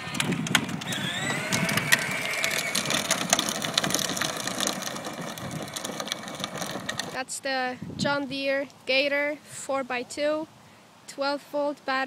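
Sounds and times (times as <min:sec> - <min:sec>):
electric motor whining: 0:00.0 - 0:07.2
plastic gearbox rattling: 0:00.0 - 0:07.2.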